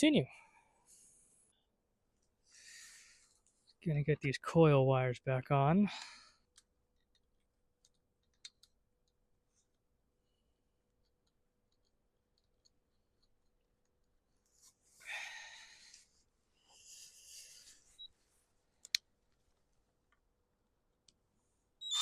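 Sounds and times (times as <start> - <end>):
faint clicks of hand work: 6.0 - 9.8, 18.8 - 19.4.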